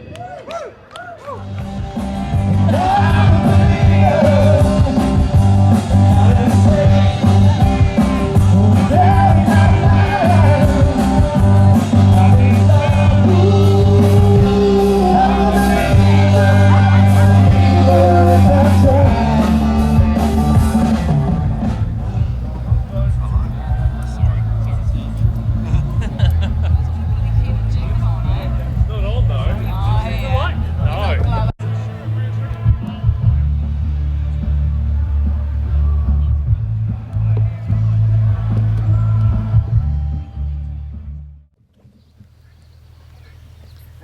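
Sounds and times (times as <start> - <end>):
rock band playing: 1.6 - 34.8
person singing: 2.5 - 23.0.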